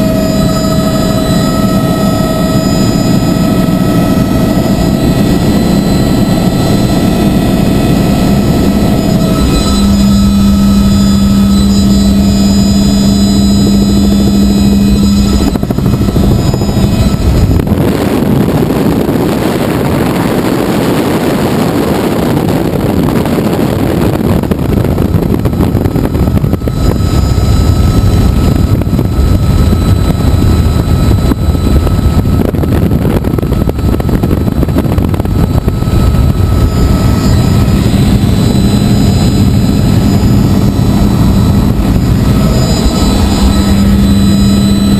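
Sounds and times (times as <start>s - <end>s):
helicopter flying: 0.0s - 44.9s.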